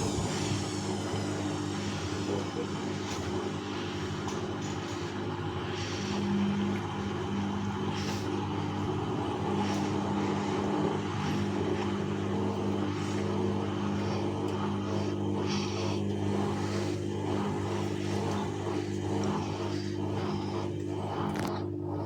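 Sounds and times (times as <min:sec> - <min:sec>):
washing machine running: 0:00.0 - 0:22.0.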